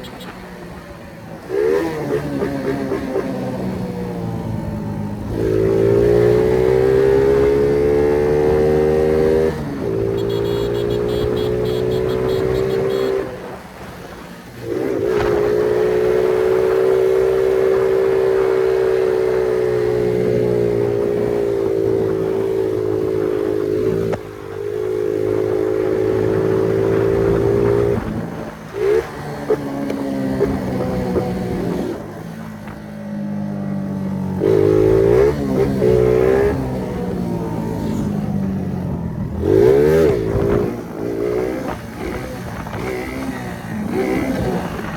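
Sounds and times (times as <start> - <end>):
moped engine revving: 0.0 - 13.6.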